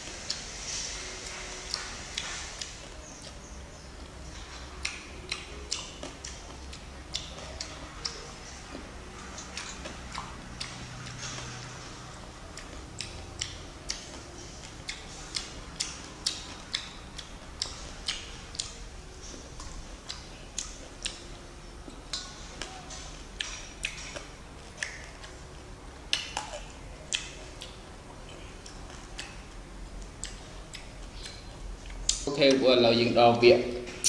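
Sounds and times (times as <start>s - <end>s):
chewing juicy fruit: 0.0s - 33.1s
wet mouth clicks and smacks: 4.4s - 8.2s, 12.6s - 21.2s, 22.1s - 25.4s, 26.1s - 32.3s.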